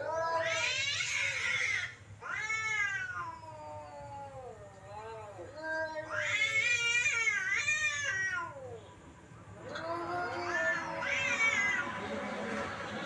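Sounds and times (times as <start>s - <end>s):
cat meowing: 0.0s - 4.6s, 5.5s - 8.8s, 9.7s - 12.0s.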